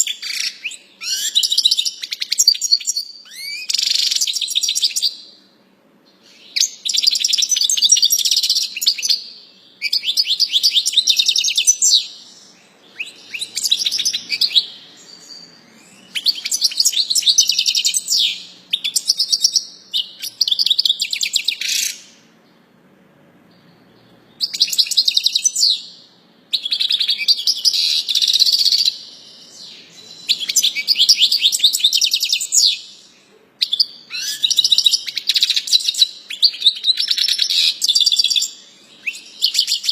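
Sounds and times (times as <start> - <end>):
songbird trilling and chirping: 0.0 - 5.4, 6.1 - 22.6, 23.5 - 39.9.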